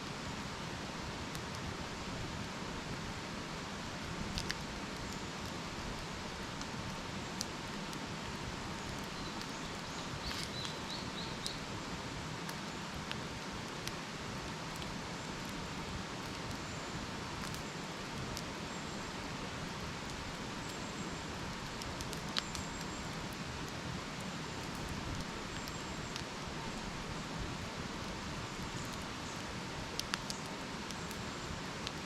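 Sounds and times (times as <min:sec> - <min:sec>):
campfire burning with crackles: 0:00.0 - 0:32.0
fire pops: 0:04.0 - 0:11.6, 0:17.3 - 0:26.4, 0:27.6 - 0:32.0.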